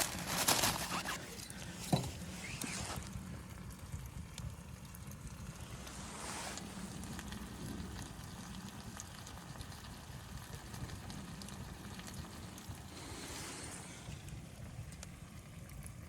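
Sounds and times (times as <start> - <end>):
low wind rumble: 0.0 - 16.0
wood fire crackling and popping: 0.0 - 16.0
hissing wind gust: 5.4 - 8.4, 12.3 - 14.6.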